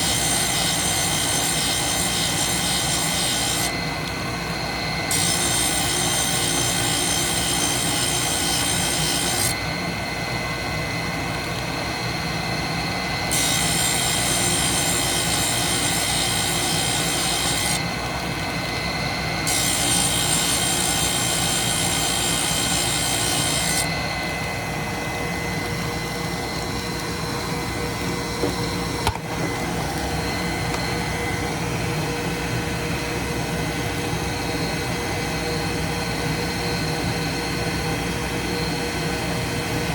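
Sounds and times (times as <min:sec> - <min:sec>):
grinder motor running: 0:00.0 - 0:09.8, 0:13.0 - 0:32.0.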